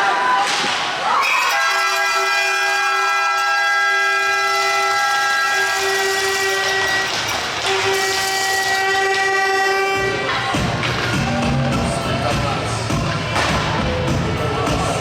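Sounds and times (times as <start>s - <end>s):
arena horn blaring: 1.4s - 10.6s.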